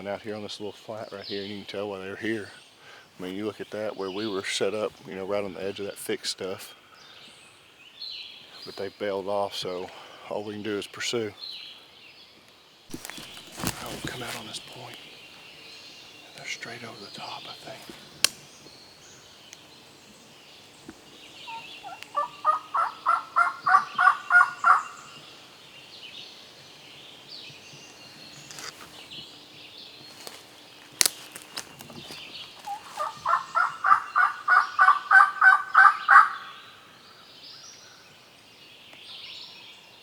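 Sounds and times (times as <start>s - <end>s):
turkey yelping calls: 21.4s - 25.2s, 32.6s - 36.7s.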